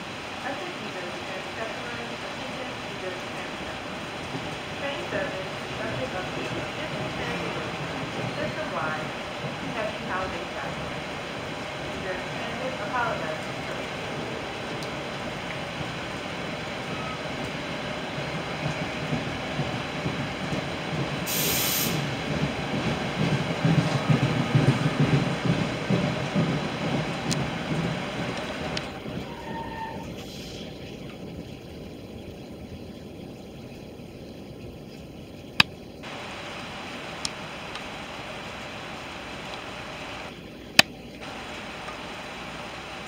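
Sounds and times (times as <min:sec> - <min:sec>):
train wheels rumbling on rails: 0:00.0 - 0:43.0
brief hiss: 0:21.3 - 0:22.1.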